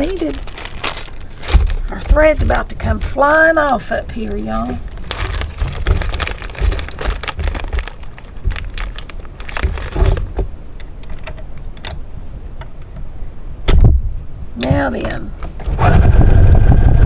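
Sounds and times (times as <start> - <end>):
crinkly rustling: 0.0 - 12.4.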